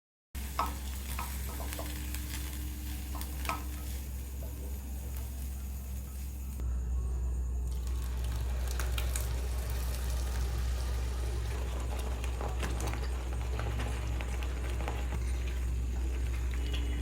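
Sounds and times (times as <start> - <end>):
steady low hum: 0.4 - 17.0
water boiling in a pot: 0.4 - 17.0
small pops and crackles: 0.5 - 5.4.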